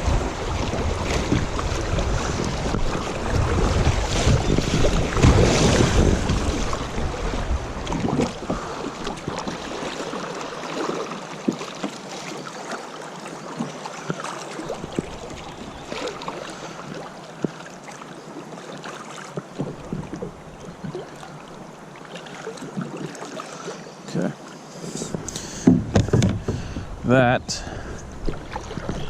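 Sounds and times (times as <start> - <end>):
river water splashing: 0.0 - 29.0
knocks against kayak hull: 25.1 - 26.9.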